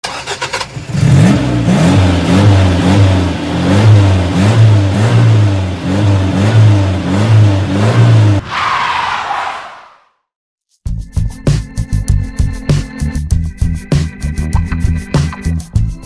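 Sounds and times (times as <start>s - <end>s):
car engine revving: 0.1s - 9.6s.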